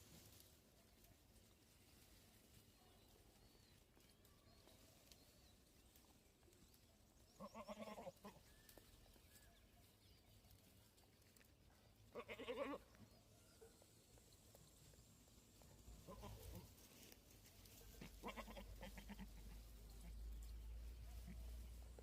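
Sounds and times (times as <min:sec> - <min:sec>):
goat bleating: 0:07.4 - 0:08.5, 0:12.1 - 0:12.8, 0:16.0 - 0:16.7, 0:17.8 - 0:20.5.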